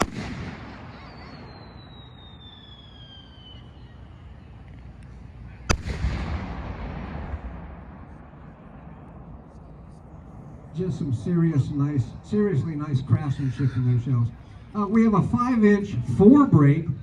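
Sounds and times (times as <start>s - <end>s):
firework bang echoing: 0.0s - 3.2s, 5.7s - 9.0s.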